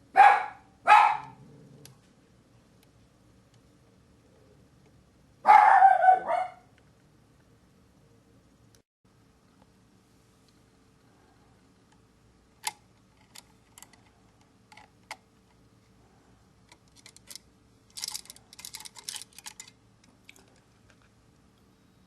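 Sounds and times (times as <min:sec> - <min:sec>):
small hard parts clicking: 0:12.6 - 0:15.6, 0:16.6 - 0:21.1.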